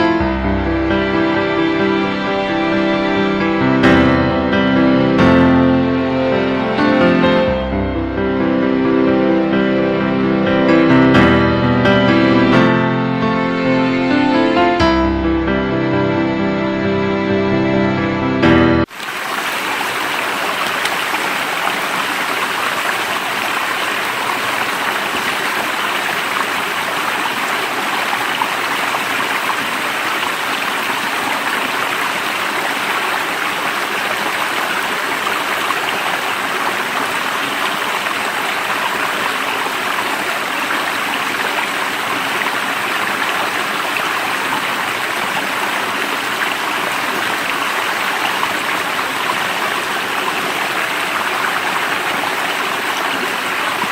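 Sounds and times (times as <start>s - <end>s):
stream water flowing: 18.8s - 53.9s.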